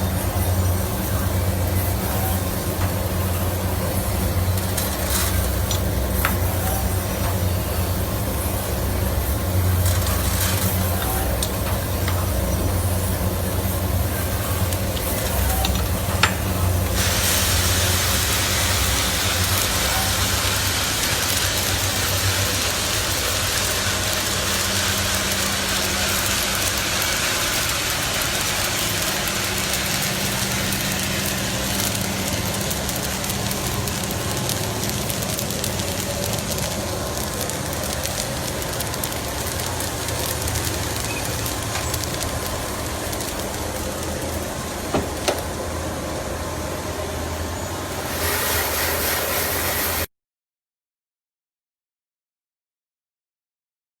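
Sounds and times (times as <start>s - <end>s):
coffee roaster mechanical hum: 0.0s - 50.1s.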